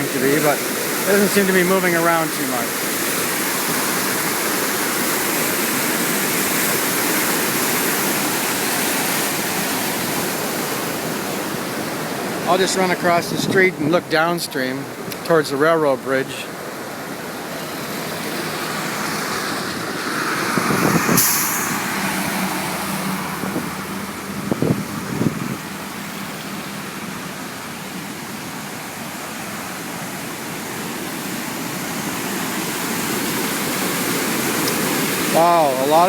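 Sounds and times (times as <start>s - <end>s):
river rushing: 0.0s - 36.0s
road traffic passing: 14.8s - 36.0s.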